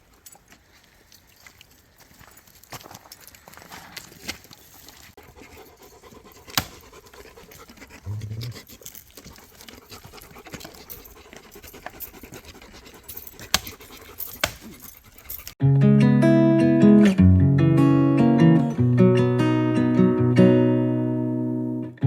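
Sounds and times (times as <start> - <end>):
dog panting: 5.2 - 15.6.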